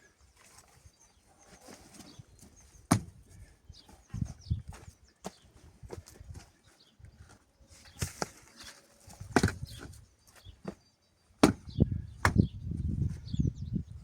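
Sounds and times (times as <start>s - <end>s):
sharp chopping knocks: 2.9s - 3.1s, 9.3s - 9.6s, 11.4s - 12.4s.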